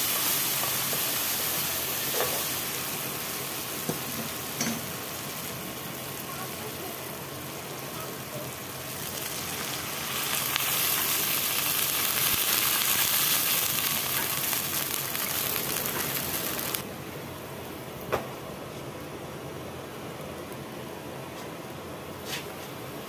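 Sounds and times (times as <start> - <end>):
fish sizzling in a pan: 0.0 - 16.8.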